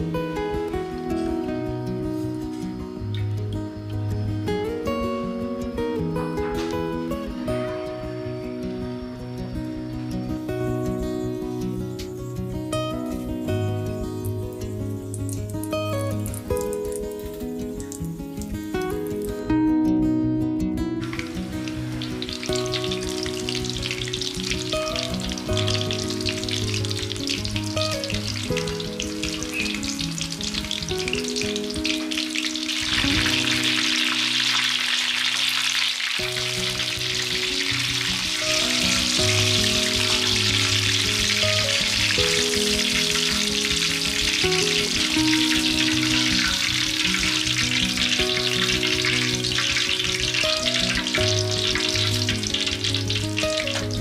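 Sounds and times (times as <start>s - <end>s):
soft background music: 0.0s - 54.0s
frying in hot oil sizzling: 13.1s - 19.4s, 21.0s - 54.0s.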